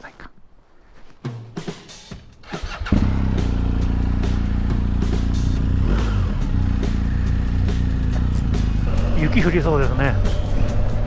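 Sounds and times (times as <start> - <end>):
motorcycle engine starting and idling: 2.4 - 11.0.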